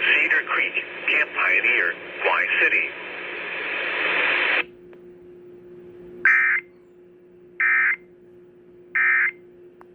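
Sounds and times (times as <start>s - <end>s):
faint steady hum: 0.0s - 9.9s
harsh digital tone bursts: 6.3s - 6.6s.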